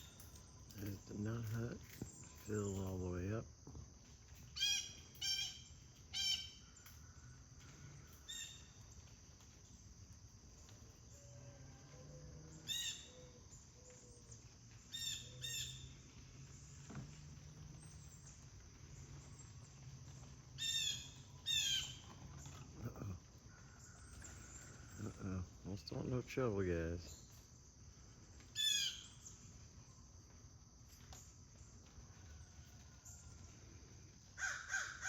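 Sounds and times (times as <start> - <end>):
high insect drone: 0.0 - 35.0
bird calling: 19.0 - 25.4, 28.6 - 29.4.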